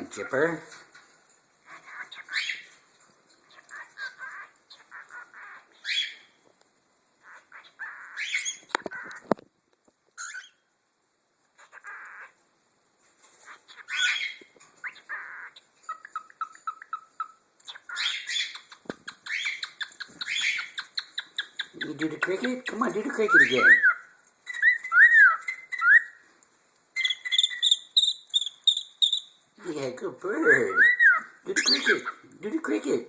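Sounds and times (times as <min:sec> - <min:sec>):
cockatiels chirping: 0:01.6 - 0:02.8, 0:03.4 - 0:06.3, 0:07.2 - 0:09.3, 0:10.2 - 0:10.6, 0:13.4 - 0:26.2, 0:27.0 - 0:29.8, 0:30.4 - 0:32.3.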